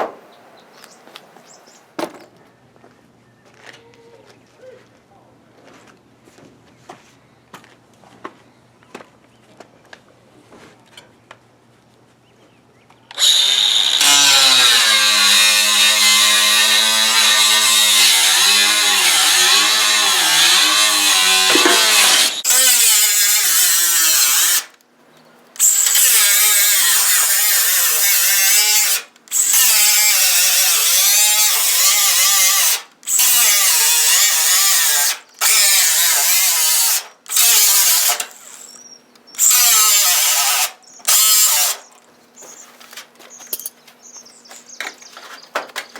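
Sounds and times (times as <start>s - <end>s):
electric drill boring into metal: 13.1s - 24.7s, 25.6s - 38.8s, 39.4s - 41.8s.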